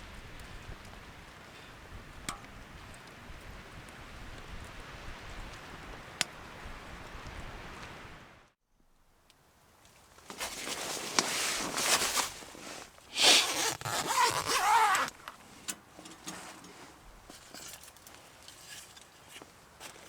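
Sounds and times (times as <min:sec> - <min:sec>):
rustling and scraping handling: 0:09.9 - 0:20.0.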